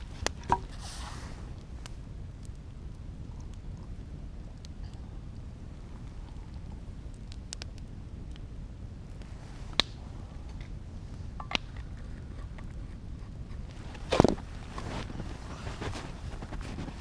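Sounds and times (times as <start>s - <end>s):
campfire crackles and pops: 0.0s - 17.0s
fire low rumble: 0.0s - 17.0s.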